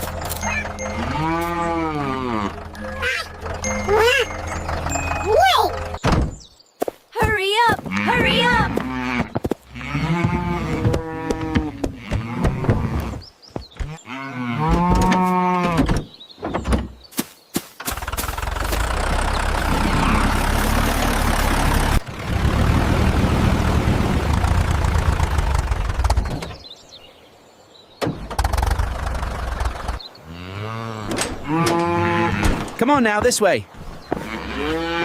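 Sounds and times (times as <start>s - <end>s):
tractor engine rumbling: 0.0s - 6.5s, 17.8s - 26.7s, 28.0s - 30.2s, 31.0s - 35.0s
cow mooing: 0.8s - 3.2s, 7.9s - 13.2s, 30.2s - 32.7s, 34.2s - 35.0s.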